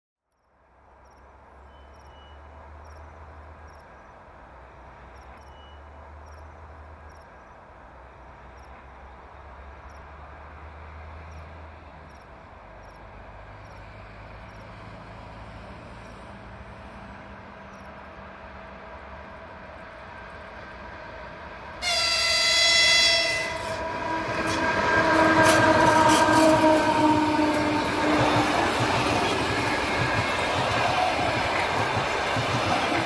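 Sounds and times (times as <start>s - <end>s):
insect chirps: 0.3s - 4.1s, 5.2s - 7.5s, 13.6s - 14.7s, 17.7s - 18.0s
distant train rumble: 2.4s - 33.0s.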